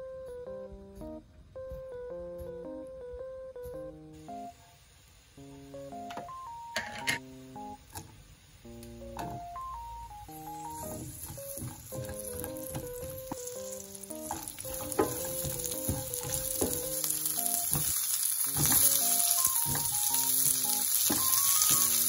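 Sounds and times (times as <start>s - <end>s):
light background music: 0.0s - 4.7s, 5.4s - 8.0s, 8.6s - 22.0s
food sizzling in hot oil: 7.6s - 22.0s
spatula knocking on pan: 10.6s - 21.9s.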